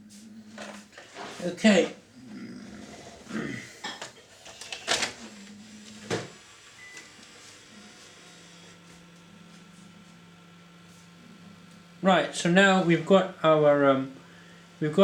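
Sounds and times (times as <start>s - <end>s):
tape mechanism clicking and clunking: 4.0s - 5.6s
motor whir: 4.4s - 11.8s.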